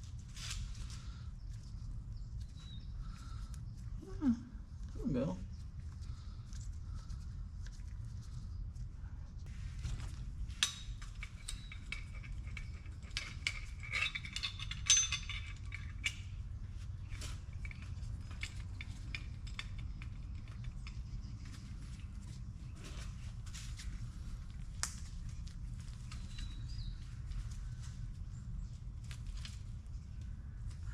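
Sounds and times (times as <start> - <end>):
steady low hum: 0.0 - 30.9
metal parts and tools clinking: 10.4 - 22.3.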